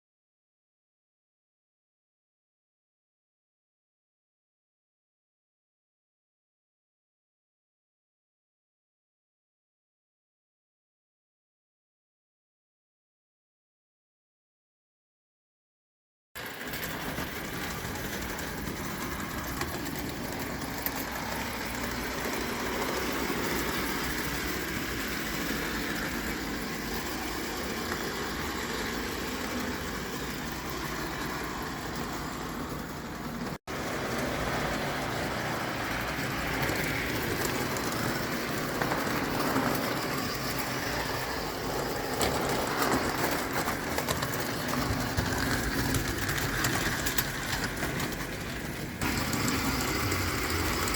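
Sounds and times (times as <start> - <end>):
mechanical rattle: 16.4 - 50.9
model steam locomotive hissing: 16.4 - 50.9.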